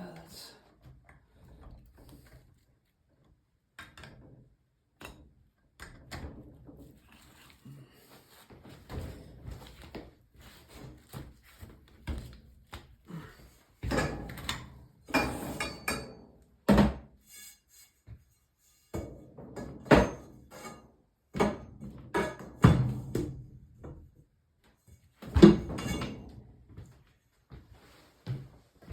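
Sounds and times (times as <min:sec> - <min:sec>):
knocks and clunks from hand work: 0:03.7 - 0:07.0, 0:13.8 - 0:17.1, 0:18.9 - 0:24.0, 0:25.2 - 0:26.3.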